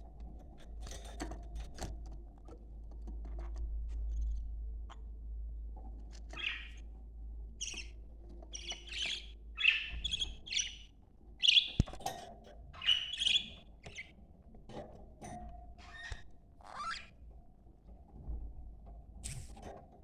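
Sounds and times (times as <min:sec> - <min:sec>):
budgerigars chirping: 0:06.3 - 0:06.8, 0:07.6 - 0:11.9, 0:12.8 - 0:14.1
sharp click: 0:19.2 - 0:19.6.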